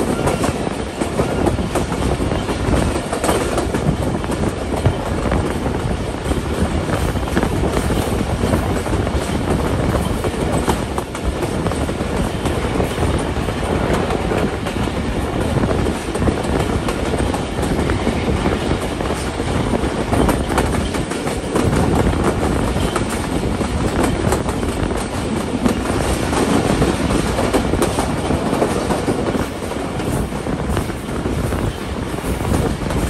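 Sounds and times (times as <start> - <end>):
clatter over track: 0.0 - 33.0
train wheels rumbling on rails: 0.0 - 33.0.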